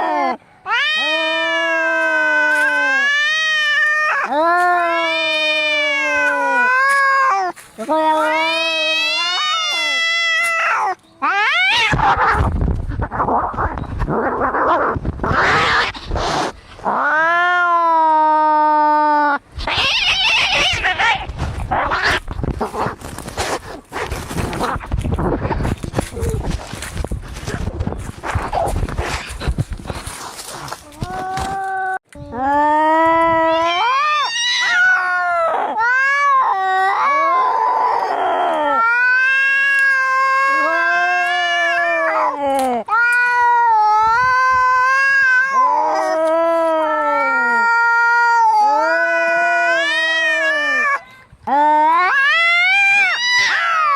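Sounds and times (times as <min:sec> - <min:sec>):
cat yowling: 0:00.0 - 0:12.5, 0:16.9 - 0:22.3, 0:33.3 - 0:53.9
cats screeching: 0:00.0 - 0:23.3, 0:33.3 - 0:53.9
cats hissing and spitting: 0:11.7 - 0:17.0, 0:19.6 - 0:31.5
cat hissing: 0:11.7 - 0:17.1.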